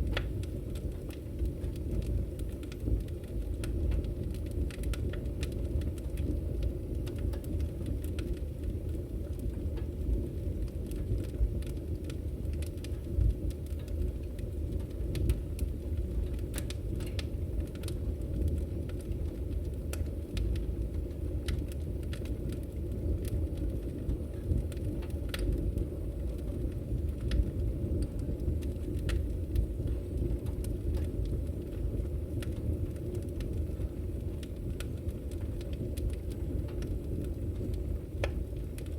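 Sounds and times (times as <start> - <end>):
wood fire crackling: 0.0 - 38.9
sharp pops and snaps: 37.7 - 38.9.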